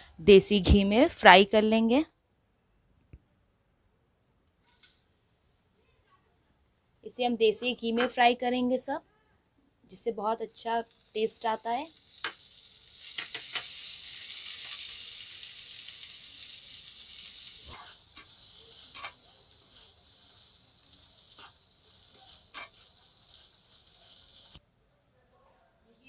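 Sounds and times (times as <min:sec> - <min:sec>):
nuts sizzling in ghee: 0:04.6 - 0:09.0, 0:09.7 - 0:24.6
spatula scraping a pan: 0:11.9 - 0:24.6.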